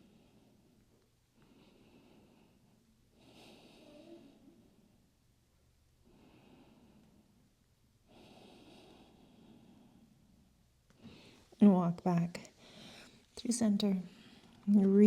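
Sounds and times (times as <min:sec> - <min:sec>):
faint slow breathing: 0:00.0 - 0:05.1, 0:06.0 - 0:11.6, 0:12.5 - 0:13.4, 0:14.0 - 0:14.7.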